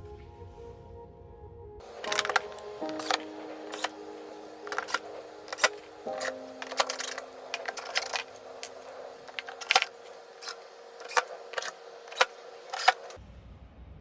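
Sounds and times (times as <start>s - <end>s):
steady hum: 1.8s - 13.2s
sharp clicks and knocks: 4.6s - 13.2s.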